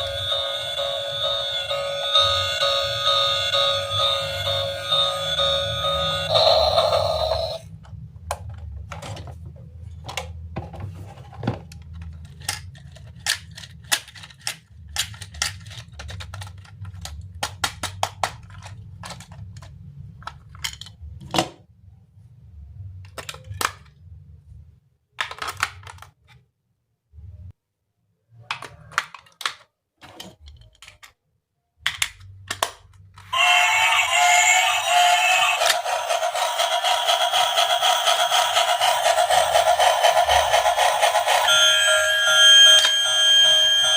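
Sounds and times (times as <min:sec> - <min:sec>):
plastic toy parts clicking: 0:11.7 - 0:21.1, 0:23.0 - 0:24.0, 0:25.2 - 0:26.4, 0:28.5 - 0:31.2, 0:31.8 - 0:33.4.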